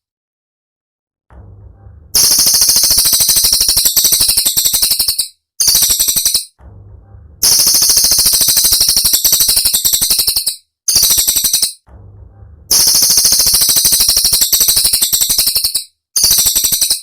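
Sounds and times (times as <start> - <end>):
bird rattling trill: 2.2 - 6.6, 7.4 - 11.8, 12.7 - 17.0.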